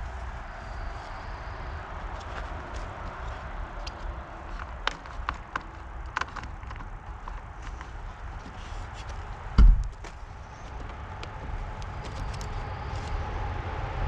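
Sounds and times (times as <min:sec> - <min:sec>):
road traffic rumble: 0:00.0 - 0:14.0
handling clicks and taps: 0:02.1 - 0:12.6
loud thump: 0:09.6 - 0:10.0.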